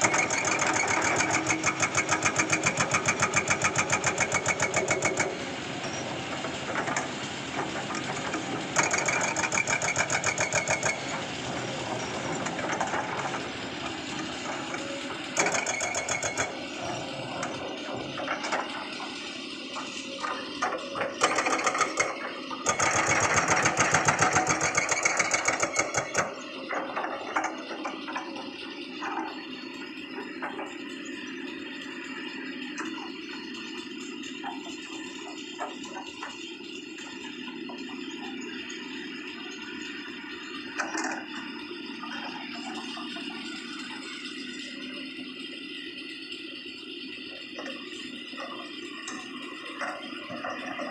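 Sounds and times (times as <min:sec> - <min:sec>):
excavator diesel engine under load: 0:00.0 - 0:27.3.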